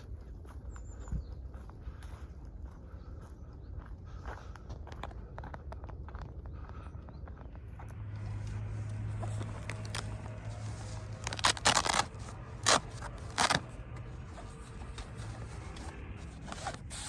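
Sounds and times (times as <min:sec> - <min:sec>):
steady low hum: 0:00.0 - 0:17.0
rustling handling noises: 0:08.2 - 0:17.0.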